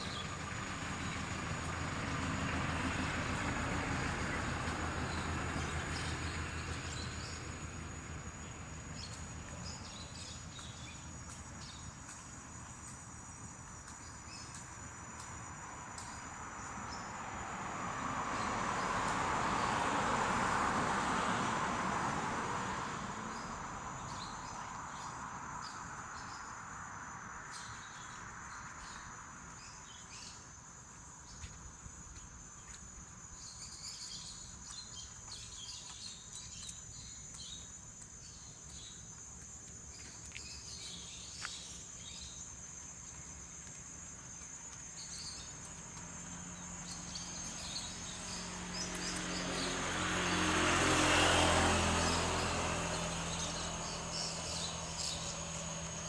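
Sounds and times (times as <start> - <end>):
motor vehicle passing: 0.0 - 11.0, 16.4 - 27.6, 41.7 - 56.0
insect drone: 0.0 - 56.0.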